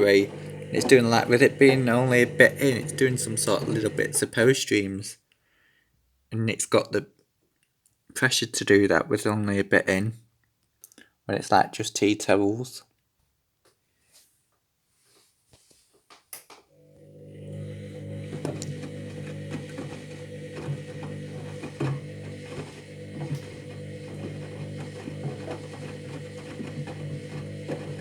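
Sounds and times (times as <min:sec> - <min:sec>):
washing machine motor hum: 0:00.0 - 0:04.4, 0:16.7 - 0:28.0.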